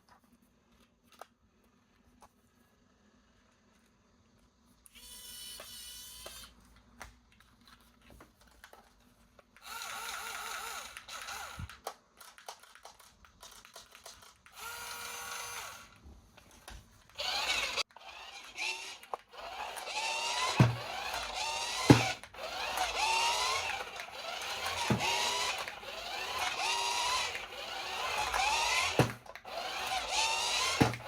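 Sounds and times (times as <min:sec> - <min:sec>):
toy electric motor whirring: 0:04.9 - 0:06.6, 0:09.6 - 0:16.0, 0:17.2 - 0:31.0
plastic clicks and handling: 0:06.2 - 0:09.7, 0:11.0 - 0:14.6.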